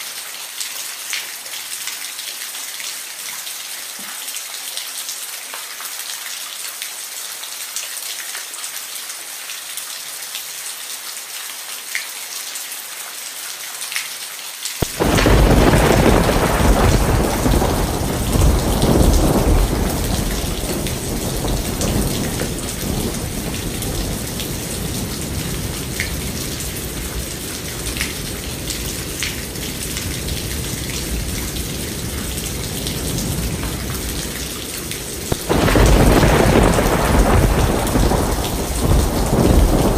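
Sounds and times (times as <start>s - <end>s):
steady rain falling: 0.0s - 39.9s
thunder clap rumbling: 14.8s - 39.9s.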